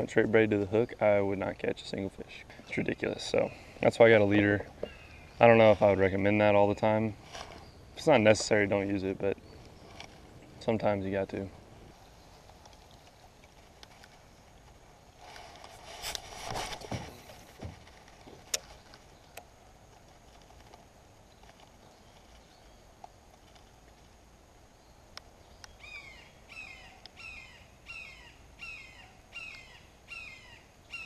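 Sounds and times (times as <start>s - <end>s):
rustle: 0.0s - 31.0s
bird calling harsh notes: 2.6s - 8.1s, 25.8s - 31.0s.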